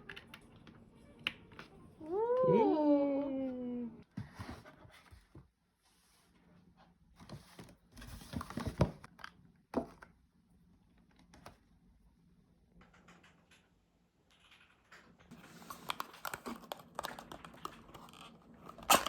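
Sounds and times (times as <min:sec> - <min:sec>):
small objects clicking and knocking: 0:14.3 - 0:19.0.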